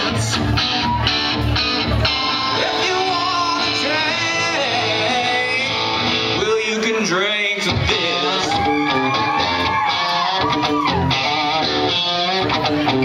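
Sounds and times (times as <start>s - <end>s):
drums: 0.0s - 13.0s
strummed guitar: 0.0s - 13.0s
man singing: 2.5s - 9.3s.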